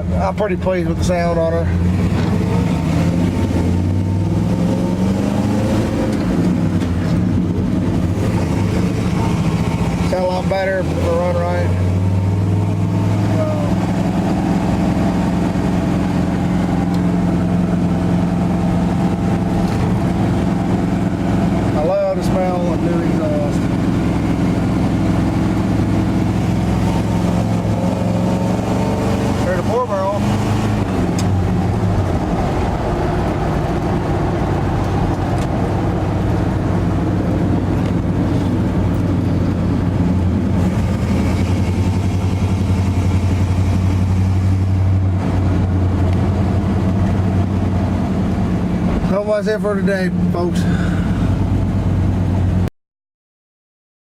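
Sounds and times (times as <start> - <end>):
man talking: 0.0 - 1.8, 8.7 - 11.8, 21.7 - 23.7, 29.4 - 30.3, 49.0 - 50.9
pickup engine running: 0.0 - 52.7.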